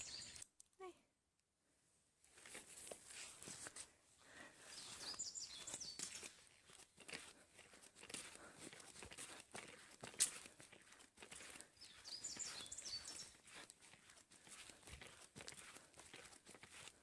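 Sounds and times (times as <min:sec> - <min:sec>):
footsteps crunching on road: 0:04.7 - 0:17.0.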